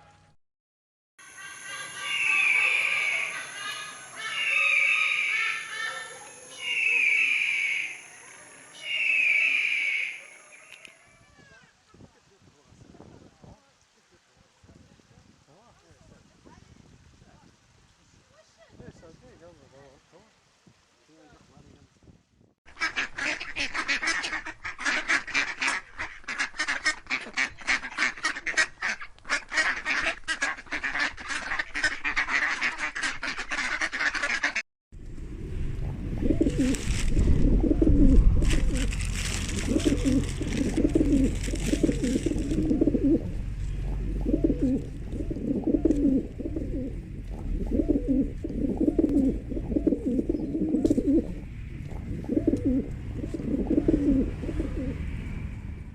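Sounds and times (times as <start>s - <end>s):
dense rapid bird calls: 1.3s - 8.2s, 8.8s - 10.7s
low repeating bird calls: 1.3s - 11.0s, 38.6s - 55.6s
low rumble: 35.0s - 55.9s.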